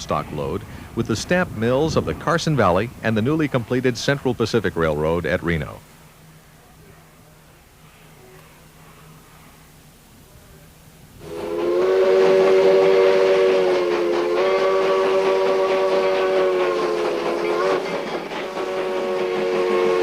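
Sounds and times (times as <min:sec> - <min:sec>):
moving train rushing: 0:11.2 - 0:20.0
steam locomotive chime whistle: 0:11.2 - 0:20.0.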